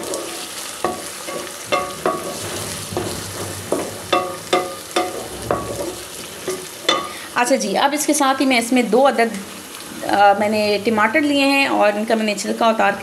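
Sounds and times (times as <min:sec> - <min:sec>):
spatula knocking on pot: 0:00.0 - 0:07.2
onions sizzling in oil: 0:00.0 - 0:13.0.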